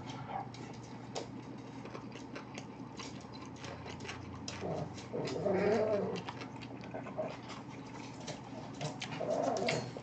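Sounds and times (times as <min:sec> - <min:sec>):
hummed mmm: 0:00.0 - 0:07.8
chewing with mouth clicks: 0:00.0 - 0:10.0.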